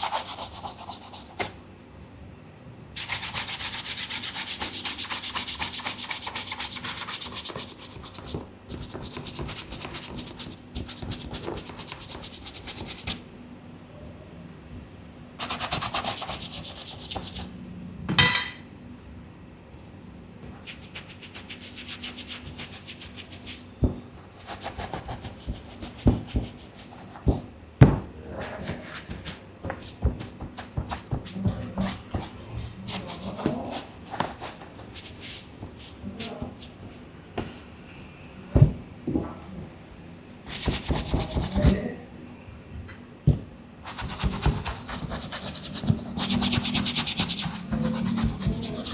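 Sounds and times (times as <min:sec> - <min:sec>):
brush scrubbing a sneaker: 0:00.0 - 0:01.5, 0:03.0 - 0:13.2, 0:15.4 - 0:17.5, 0:43.9 - 0:48.9.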